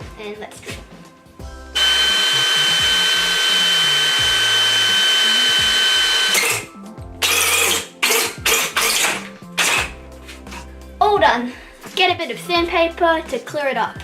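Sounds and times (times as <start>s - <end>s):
power drill cutting plastic tube: 1.8s - 10.0s.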